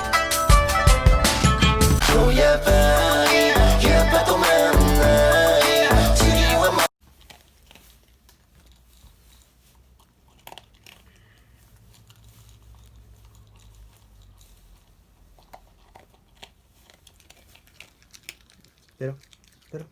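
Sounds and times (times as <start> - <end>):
dog chewing and crunching food: 7.0 - 19.9.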